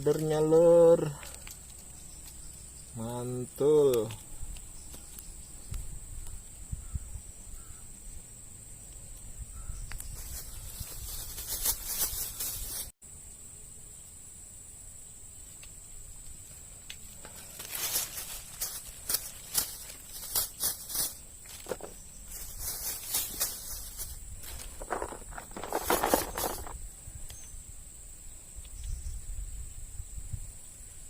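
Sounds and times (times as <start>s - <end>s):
rustling and scuffing: 10.1s - 12.9s, 16.4s - 26.8s.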